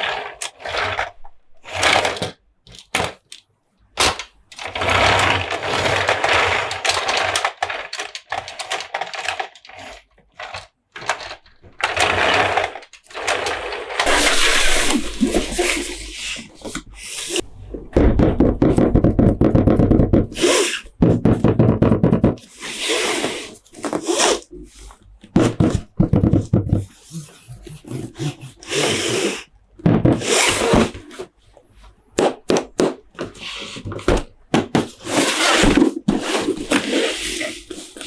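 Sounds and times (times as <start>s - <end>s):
plastic toys tapping and clicking: 1.7s - 16.0s, 16.6s - 22.6s, 23.3s - 27.0s, 32.2s - 38.0s
packaging rustling: 4.0s - 19.0s
plastic rattling: 4.0s - 22.6s, 23.2s - 26.9s.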